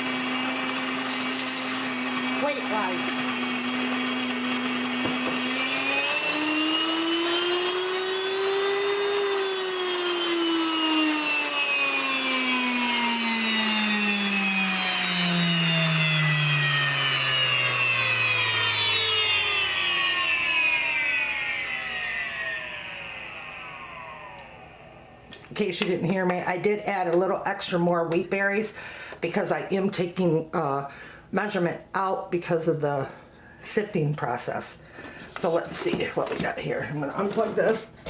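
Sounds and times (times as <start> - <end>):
electric grain mill whining: 0.0 - 25.9, 35.0 - 38.0.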